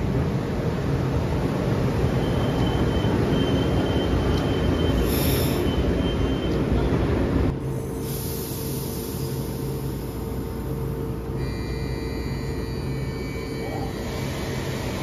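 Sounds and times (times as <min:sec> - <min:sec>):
train wheels rumbling on rail: 0:00.0 - 0:11.3
high wheel squeal: 0:02.1 - 0:06.7.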